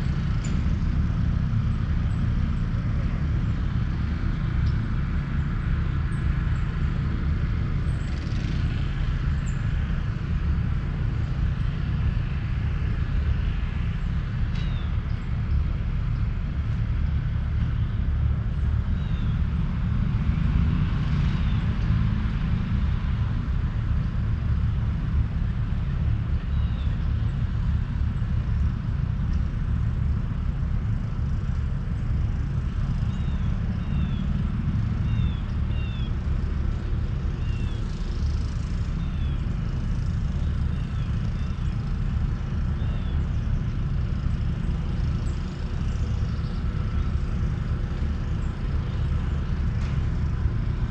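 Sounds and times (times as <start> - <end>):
steady low rumble: 0.0 - 50.9.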